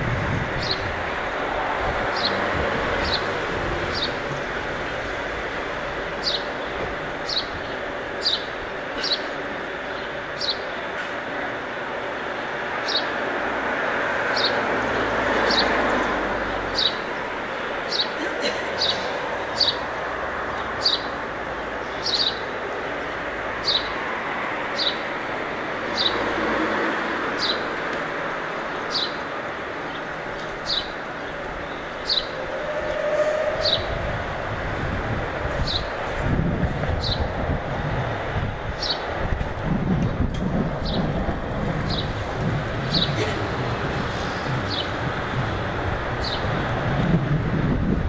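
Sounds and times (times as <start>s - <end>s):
wind on microphone: 0.0s - 4.6s, 32.1s - 48.0s
city traffic: 0.0s - 48.0s.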